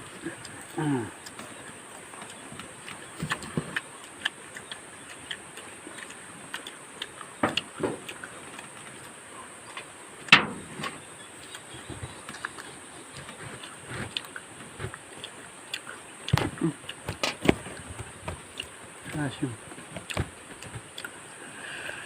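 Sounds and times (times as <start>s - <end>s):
faint steady hiss: 0.0s - 22.0s
chewing and smacking: 0.1s - 9.9s, 11.3s - 21.3s.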